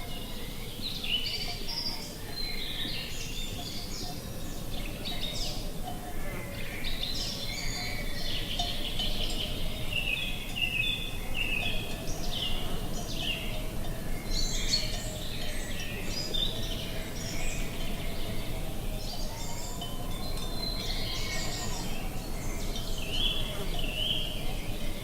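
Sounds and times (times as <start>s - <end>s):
songbirds chirping: 0.0s - 25.0s.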